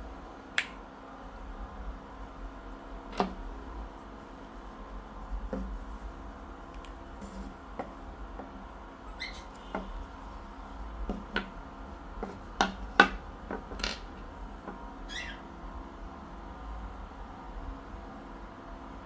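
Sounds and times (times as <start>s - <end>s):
parrot squawking: 9.1s - 9.7s, 15.0s - 15.5s.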